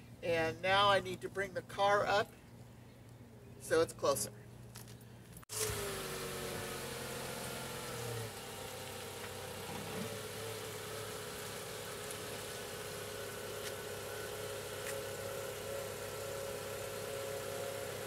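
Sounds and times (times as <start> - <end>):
car engine idling: 5.5 - 18.0.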